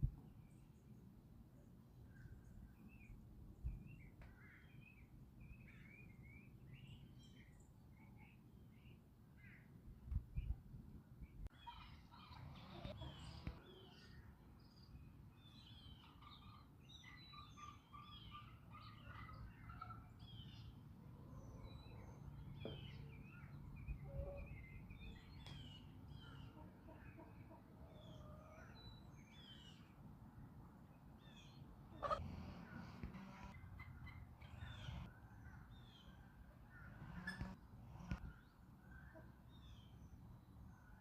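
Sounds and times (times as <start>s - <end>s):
small birds chirping: 31.0s - 41.0s.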